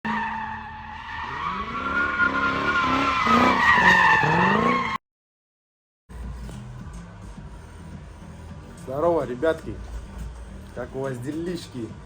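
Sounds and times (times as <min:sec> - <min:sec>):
car tyres squealing: 0:00.0 - 0:05.0
car engine revving: 0:00.7 - 0:05.0.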